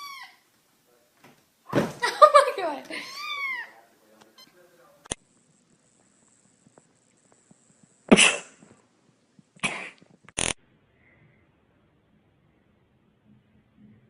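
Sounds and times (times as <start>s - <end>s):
sharp cough-like bursts: 8.1s - 8.6s, 9.6s - 10.1s.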